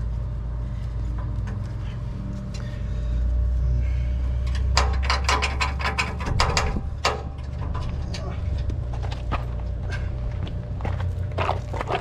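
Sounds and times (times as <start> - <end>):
vehicle engine idling: 0.0 - 12.0
sharp metallic clanks: 4.4 - 8.6.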